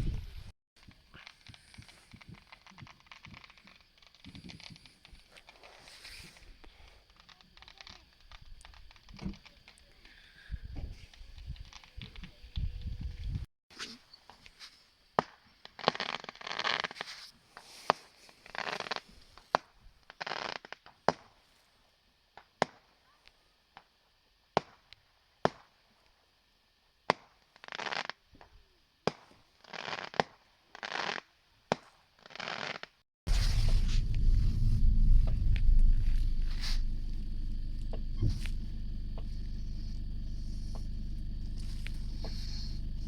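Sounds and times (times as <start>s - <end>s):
fireworks crackling: 32.4s - 43.0s
fireworks bangs: 33.3s - 42.8s.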